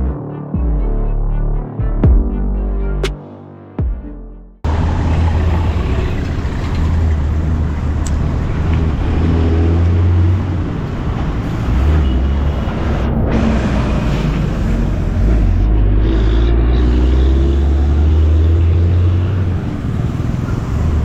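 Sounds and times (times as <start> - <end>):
road vehicle rumble: 4.6 - 21.0.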